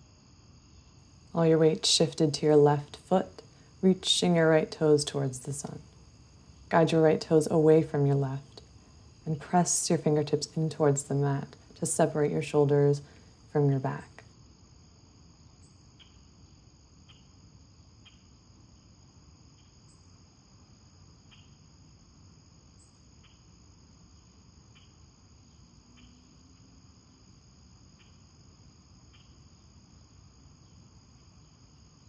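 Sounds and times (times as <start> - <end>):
crickets trilling: 0.0 - 32.0
low background hum: 1.2 - 14.2.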